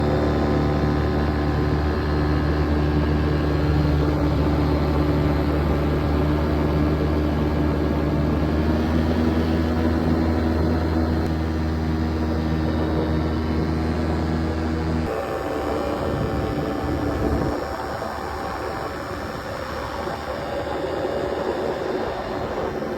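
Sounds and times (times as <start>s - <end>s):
paramotor engine droning: 0.0s - 22.9s.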